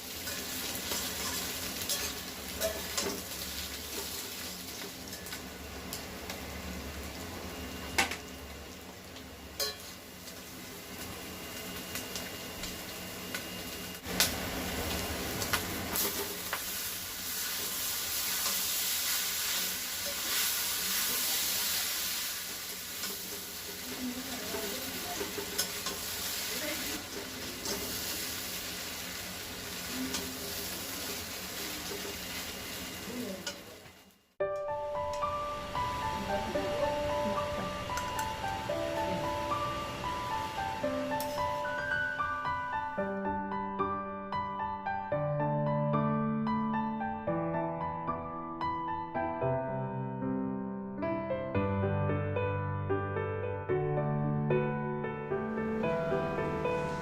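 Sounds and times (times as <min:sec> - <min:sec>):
food sizzling in a pan: 0:00.0 - 0:43.2, 0:55.5 - 0:57.0.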